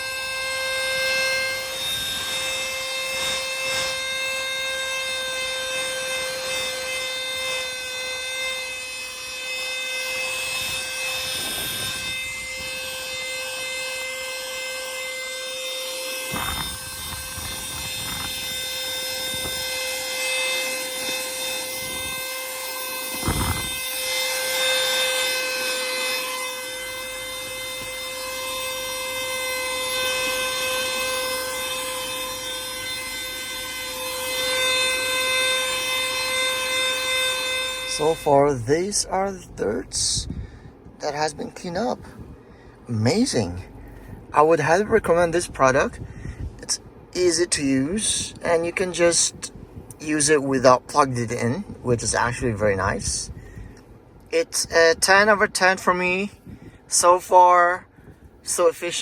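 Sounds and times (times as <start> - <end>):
handheld vacuum cleaner whining: 0.0 - 46.0
brush nozzle rubbing over surfaces: 1.8 - 13.8.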